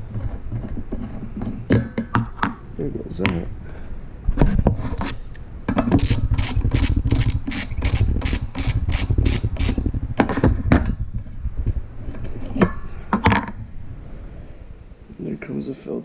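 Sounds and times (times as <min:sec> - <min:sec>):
ratchet wrench clicking: 0:06.0 - 0:09.9.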